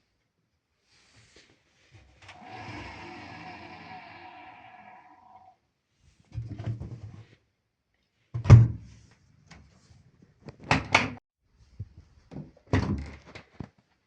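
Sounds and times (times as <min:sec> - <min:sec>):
washing machine clunks and thuds: 0:08.4 - 0:08.9.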